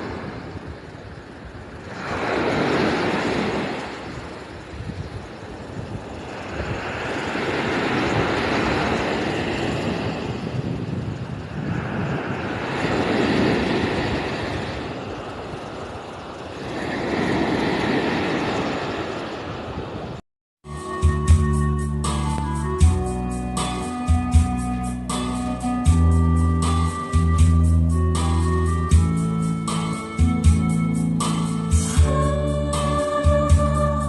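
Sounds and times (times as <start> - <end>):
sea waves washing ashore: 0.0 - 20.2.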